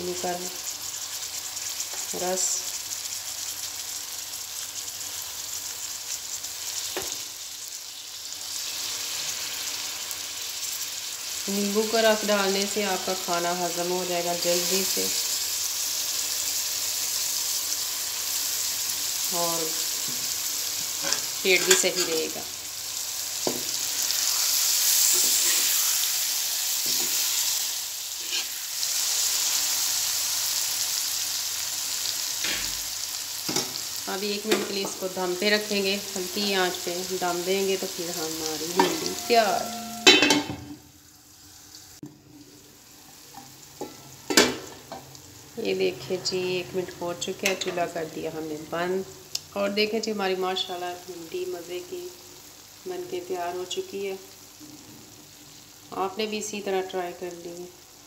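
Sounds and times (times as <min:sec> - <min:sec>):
food sizzling in a wok: 0:00.0 - 0:58.0
metal spatula scraping pan: 0:21.0 - 0:22.4, 0:28.2 - 0:28.6, 0:38.6 - 0:40.6.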